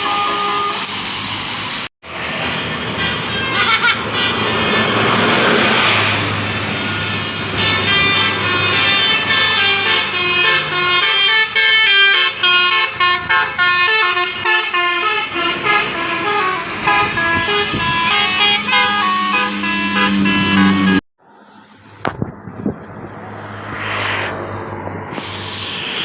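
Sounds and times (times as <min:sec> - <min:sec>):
bus horn melody: 0:00.0 - 0:01.0, 0:02.4 - 0:21.0
bus engine running: 0:00.0 - 0:26.0.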